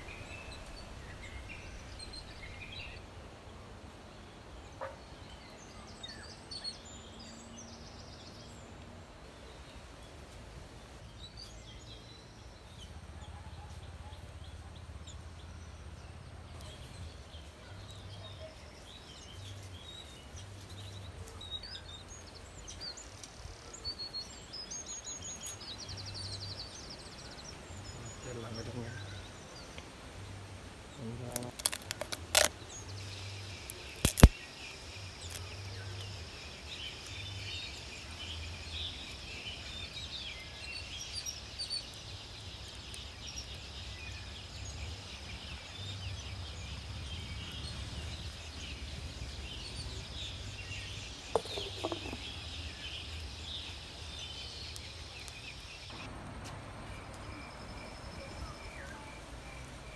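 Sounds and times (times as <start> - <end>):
birds chirping: 0.0 - 59.9
sharp clicks: 31.4 - 32.6, 33.6 - 34.4.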